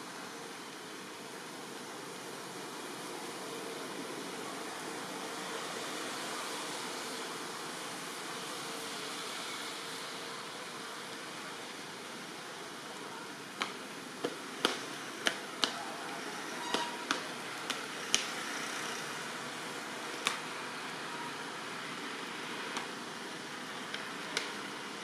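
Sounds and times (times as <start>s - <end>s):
rain hiss: 0.0s - 16.6s.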